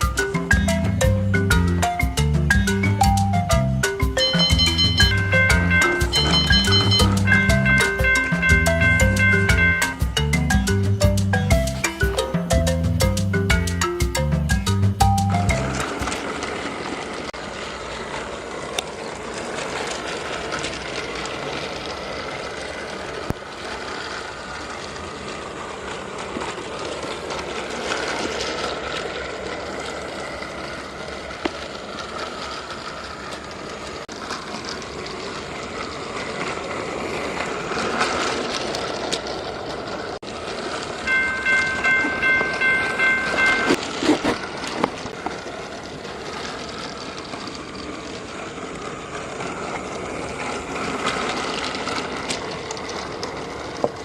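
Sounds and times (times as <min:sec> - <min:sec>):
toy train running on plastic track: 0:00.0 - 0:54.0
pulsing electronic horn tone: 0:04.2 - 0:10.2.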